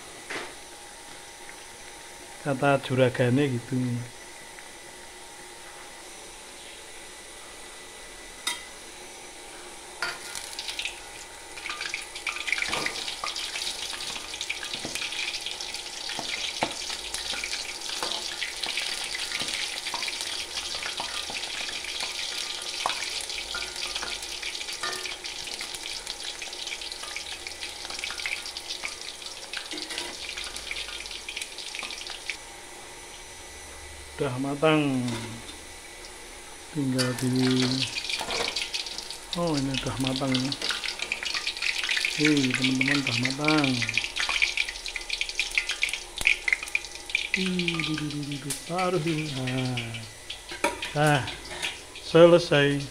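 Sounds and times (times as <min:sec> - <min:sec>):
food deep-frying in hot oil: 0:09.9 - 0:33.3, 0:34.6 - 0:52.9.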